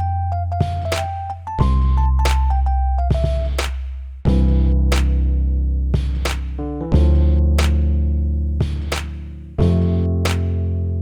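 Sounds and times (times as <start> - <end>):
keyboard melody: 0.0 - 3.5, 4.3 - 11.0
drum hits: 0.6 - 2.5, 3.1 - 3.8, 8.6 - 9.2
deep bass note: 1.6 - 11.0.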